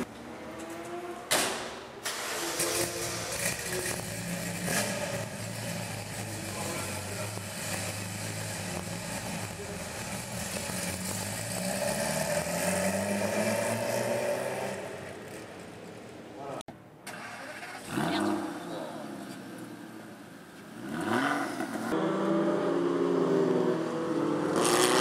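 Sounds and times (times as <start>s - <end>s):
sports car engine accelerating: 2.4s - 15.4s, 20.8s - 25.0s.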